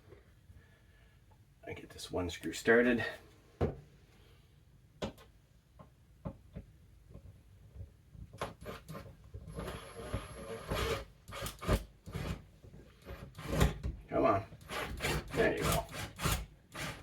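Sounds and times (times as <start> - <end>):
screw grinding into wood: 8.4 - 12.4, 13.0 - 13.8, 14.6 - 17.0.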